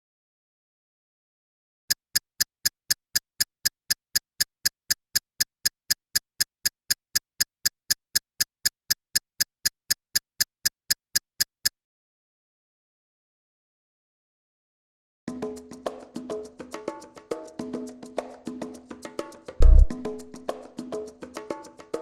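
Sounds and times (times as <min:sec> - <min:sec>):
sharp ticking clicks: 0:01.9 - 0:11.8.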